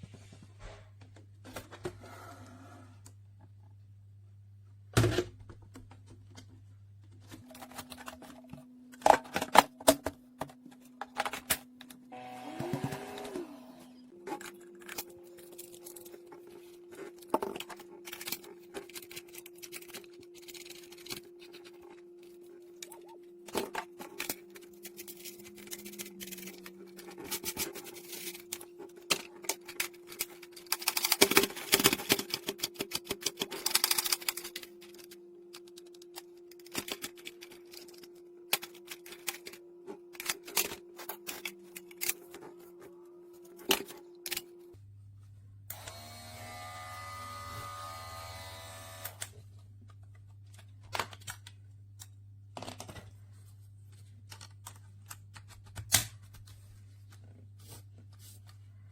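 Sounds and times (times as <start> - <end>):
electric clipper humming: 12.0 - 14.1, 45.7 - 49.3.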